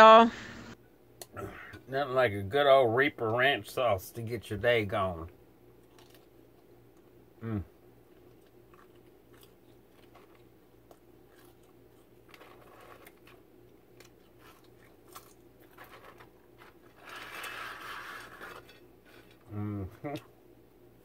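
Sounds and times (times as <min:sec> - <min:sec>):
close-up chewing: 0:05.8 - 0:07.2, 0:08.0 - 0:19.4.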